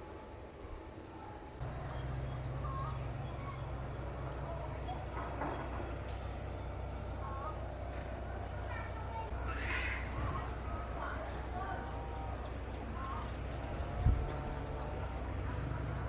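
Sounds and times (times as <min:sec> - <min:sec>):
birds chirping: 0:00.6 - 0:16.0.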